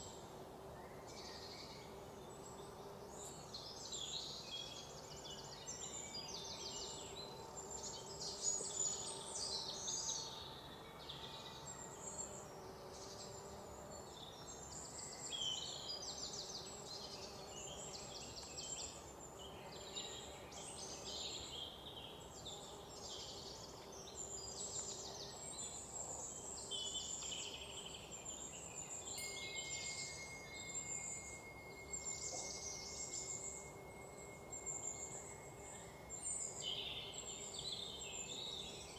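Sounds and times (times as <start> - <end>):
songbirds chirping and trilling: 0.0 - 38.9
thin high tone: 29.2 - 36.6.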